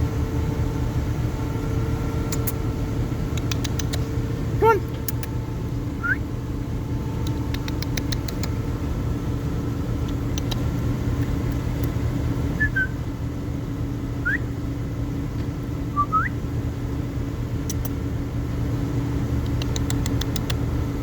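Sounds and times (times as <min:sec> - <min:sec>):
low mechanical hum: 0:00.0 - 0:21.0
quick ticks: 0:02.3 - 0:02.6, 0:03.3 - 0:04.2, 0:05.0 - 0:05.4, 0:07.2 - 0:08.6, 0:10.0 - 0:12.0, 0:17.7 - 0:18.0, 0:19.4 - 0:20.7
bird chirps: 0:06.0 - 0:06.3.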